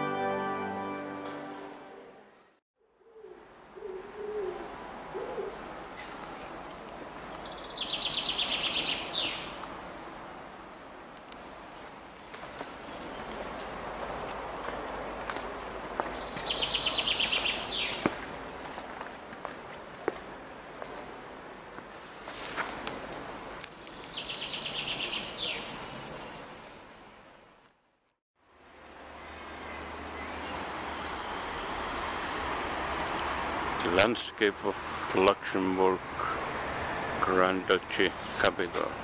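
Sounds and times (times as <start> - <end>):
low cooing: 3.0 - 5.6.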